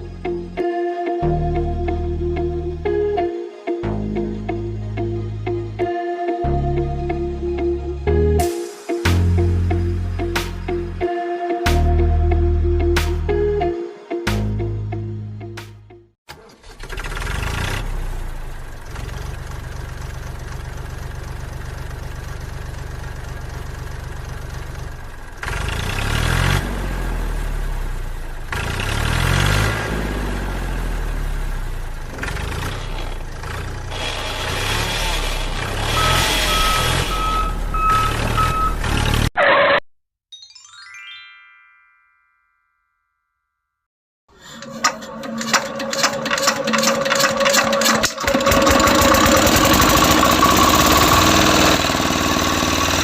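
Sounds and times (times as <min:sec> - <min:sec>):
diesel engine running and revving: 0:16.4 - 0:39.4, 0:44.8 - 0:53.0
falling chime effect: 0:40.3 - 0:43.2.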